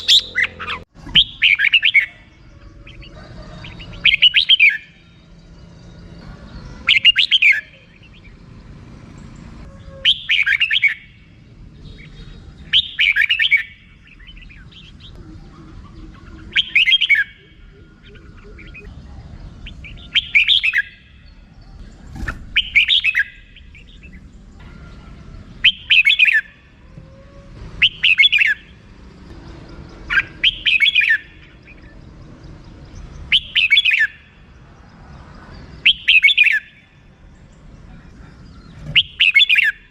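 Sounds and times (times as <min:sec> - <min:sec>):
bird chattering call: 0:00.0 - 0:04.9, 0:09.8 - 0:11.2, 0:12.0 - 0:18.9, 0:38.5 - 0:39.9.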